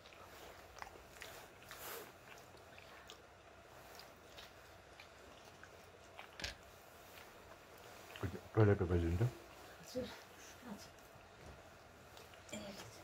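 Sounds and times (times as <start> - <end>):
chewing and wet mouth clicks: 0.0 - 8.4.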